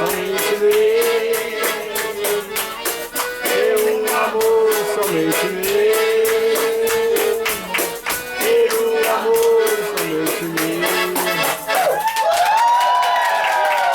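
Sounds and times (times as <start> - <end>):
live band playing: 0.0 - 12.0
shaker and percussion beat: 0.0 - 13.9
people cheering: 11.7 - 13.9.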